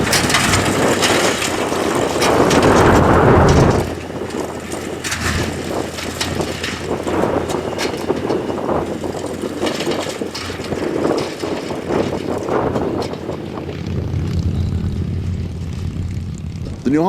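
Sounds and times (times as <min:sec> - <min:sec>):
engine drone: 0:00.0 - 0:17.0
mechanical clatter: 0:00.0 - 0:17.0.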